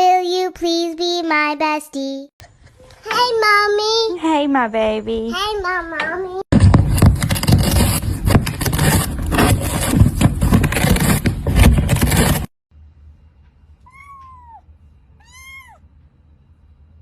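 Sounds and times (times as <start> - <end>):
cat meowing: 13.8 - 15.8.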